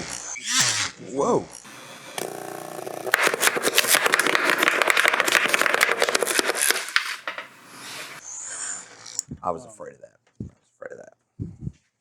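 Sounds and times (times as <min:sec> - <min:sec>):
power tool grinding metal: 0:01.7 - 0:08.2.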